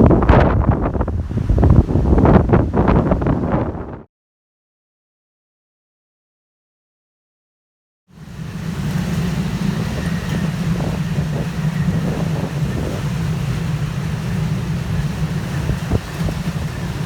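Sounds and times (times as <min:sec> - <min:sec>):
storm wind buffeting microphone: 0:00.0 - 0:04.1, 0:08.2 - 0:17.0.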